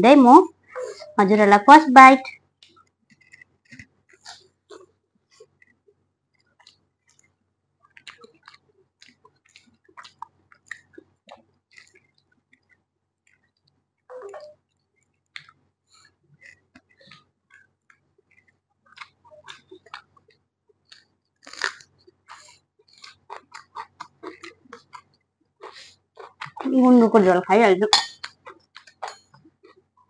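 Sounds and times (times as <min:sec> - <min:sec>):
chewing mouth clicks and smacks: 0:02.3 - 0:26.7, 0:28.2 - 0:30.0.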